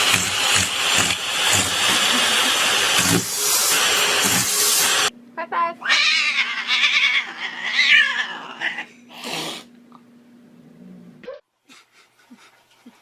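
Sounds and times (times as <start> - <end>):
cat hissing: 0.0 - 5.1, 5.9 - 9.7
cat yowling: 5.8 - 8.9.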